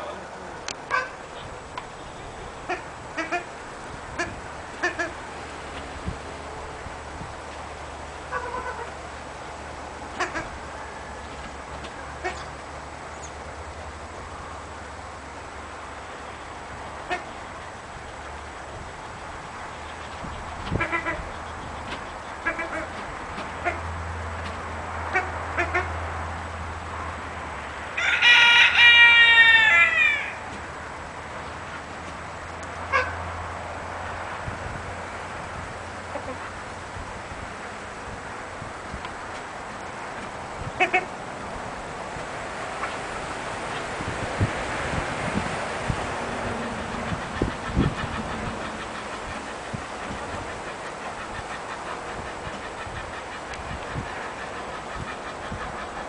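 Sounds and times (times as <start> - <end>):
poultry calling: 0.9 - 3.5, 8.2 - 9.0, 10.1 - 10.8, 19.7 - 23.0, 28.0 - 30.5
rooster crowing: 28.0 - 30.5.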